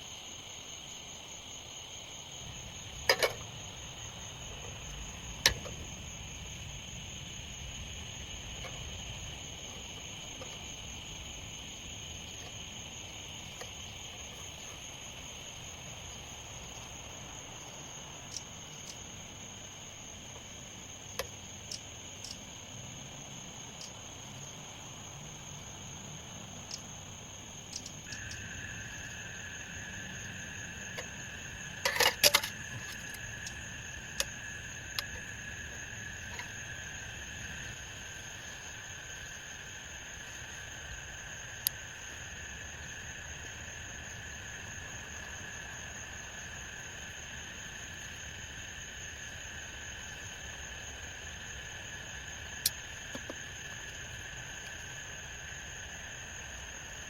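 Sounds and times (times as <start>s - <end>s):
insects chirring: 0.0s - 57.0s
faint ticks: 18.2s - 19.1s, 21.1s - 22.4s, 23.7s - 24.0s, 27.6s - 28.6s.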